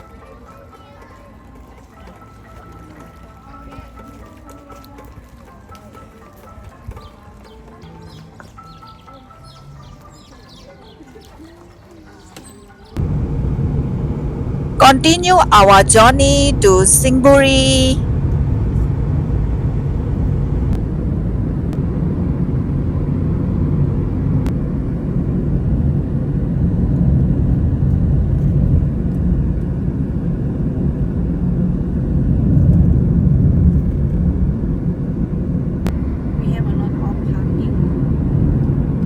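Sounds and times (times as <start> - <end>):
vehicle driving on road: 13.0 - 14.8, 18.0 - 39.0.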